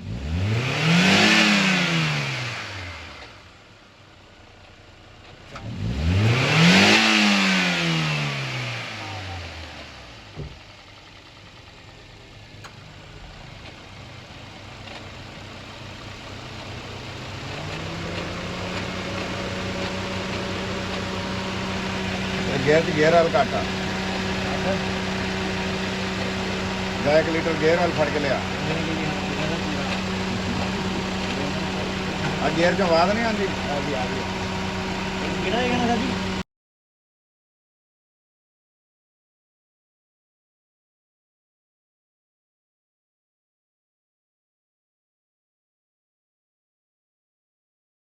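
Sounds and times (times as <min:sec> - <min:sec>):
car engine revving and idling: 0:00.0 - 0:36.4.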